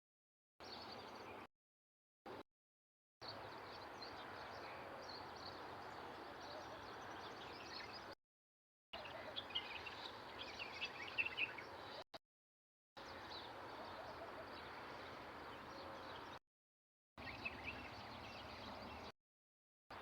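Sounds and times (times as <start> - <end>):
small birds chirping: 0.6 - 1.5, 3.2 - 8.2, 9.0 - 12.1, 13.0 - 16.4, 17.2 - 19.1.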